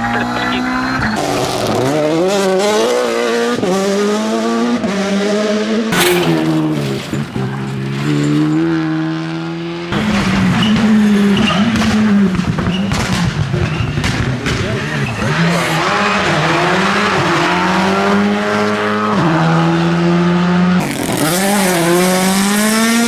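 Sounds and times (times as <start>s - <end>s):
rally car engine revving: 0.2s - 23.0s
sharp bang: 6.0s - 8.2s.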